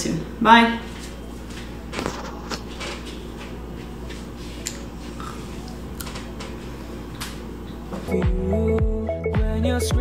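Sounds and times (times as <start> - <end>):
steady low hum: 0.0 - 8.5
person chewing crunchy snack: 5.1 - 6.2.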